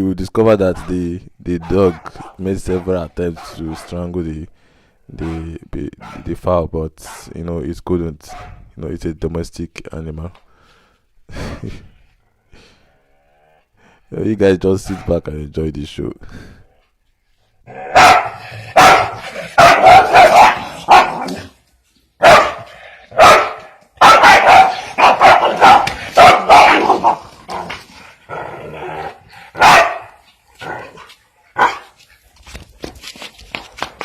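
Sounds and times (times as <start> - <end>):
dog barking loudly: 0.7 - 4.0, 6.0 - 6.3, 8.3 - 8.7, 14.9 - 15.2, 17.7 - 21.5, 22.2 - 27.7, 29.5 - 30.3, 31.6 - 32.0.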